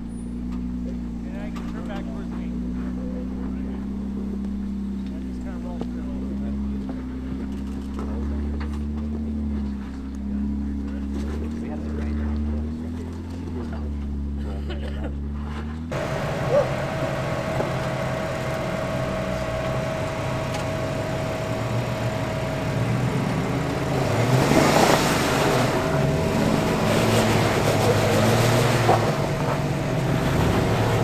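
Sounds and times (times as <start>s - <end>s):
car engine at low revs: 0.0s - 31.0s
rushing noise: 15.9s - 31.0s.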